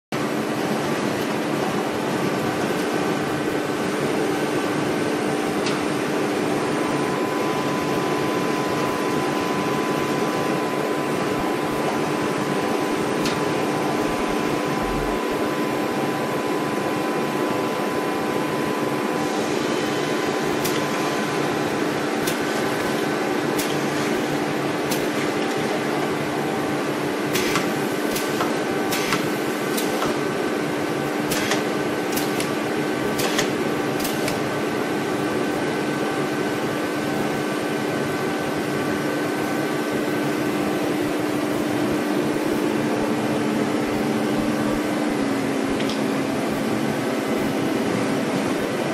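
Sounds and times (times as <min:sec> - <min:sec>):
lathe machine hum: 0:00.2 - 0:48.9
faint steady whine: 0:01.1 - 0:31.2.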